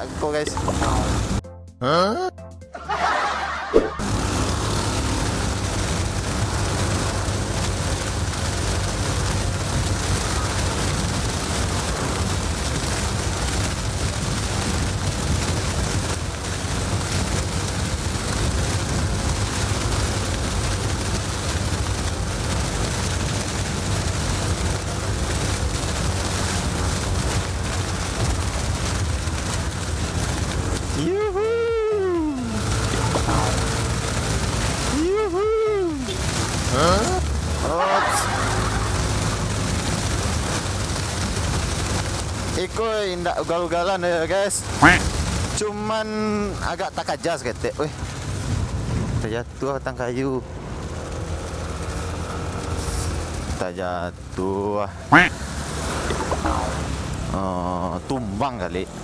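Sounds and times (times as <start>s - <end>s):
scooter road noise: 0.0s - 1.4s, 3.0s - 45.6s, 50.3s - 59.0s
low rumble: 0.0s - 2.0s
rushing wind: 3.6s - 42.6s, 48.1s - 49.3s.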